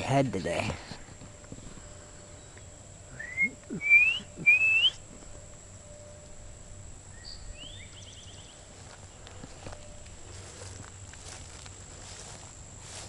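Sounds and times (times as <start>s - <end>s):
bird call: 2.1s - 5.1s
person whistling: 3.1s - 5.0s.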